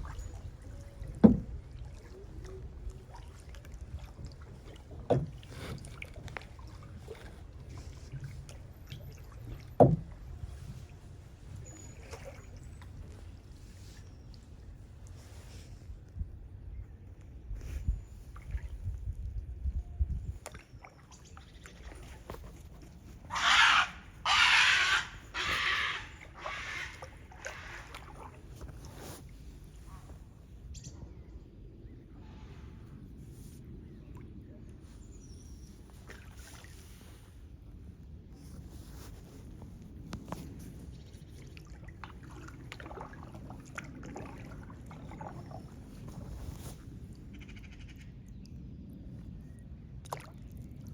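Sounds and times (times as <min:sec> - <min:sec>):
kayak paddle splashing in water: 0:00.0 - 0:14.6, 0:20.4 - 0:29.9, 0:35.8 - 0:37.2, 0:38.4 - 0:47.2, 0:50.0 - 0:50.9.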